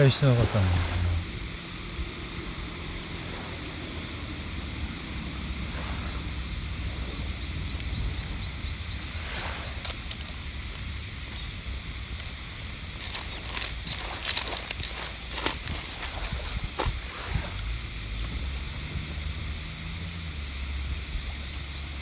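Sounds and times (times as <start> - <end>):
low rumble: 0.0 - 12.1
high hiss: 0.0 - 22.0.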